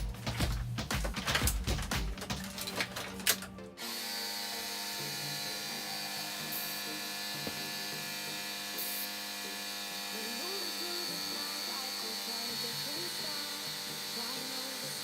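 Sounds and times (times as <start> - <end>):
background music with a beat: 0.0 - 3.8
small electric power tool whining: 3.7 - 15.0.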